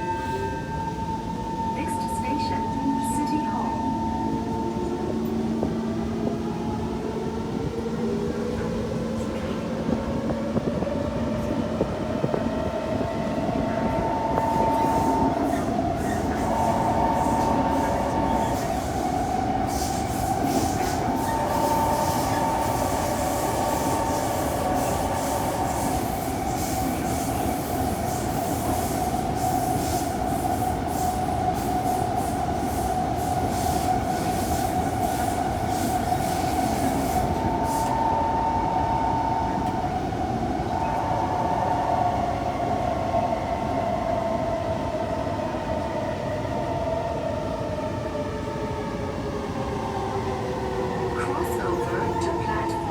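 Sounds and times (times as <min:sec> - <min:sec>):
train traction motor whine: 0:00.0 - 0:52.9
wheel and rail rumble: 0:01.3 - 0:52.9
rail clicks: 0:51.0 - 0:52.9.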